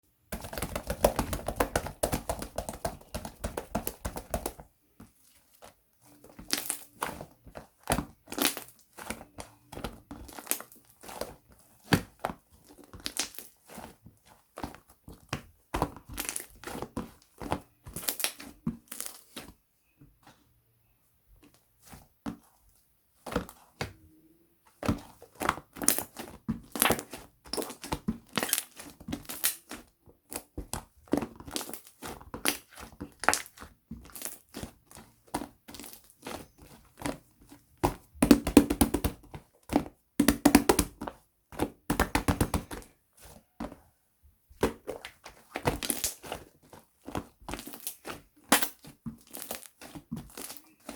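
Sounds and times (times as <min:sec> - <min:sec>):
slime crackling and popping: 0:06.2 - 0:13.8, 0:14.6 - 0:19.4, 0:24.9 - 0:43.0, 0:44.6 - 0:50.9.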